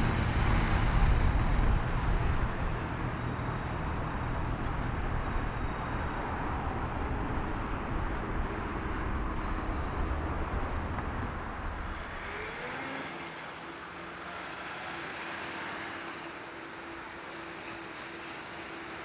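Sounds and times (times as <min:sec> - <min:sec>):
jet engine rumble: 0:00.0 - 0:12.6
high-pitched insect buzz: 0:11.6 - 0:19.0.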